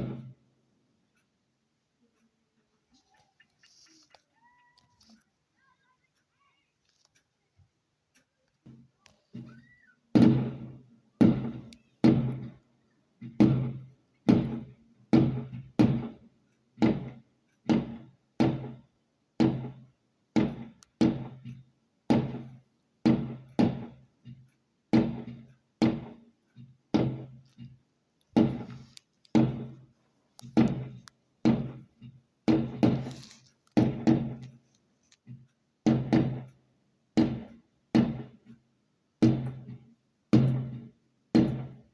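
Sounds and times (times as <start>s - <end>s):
hollow ringing knocks: 13.2s - 16.2s, 16.8s - 33.2s, 33.8s - 34.6s, 35.9s - 36.6s, 37.2s - 38.6s, 39.2s - 39.8s, 40.4s - 41.9s.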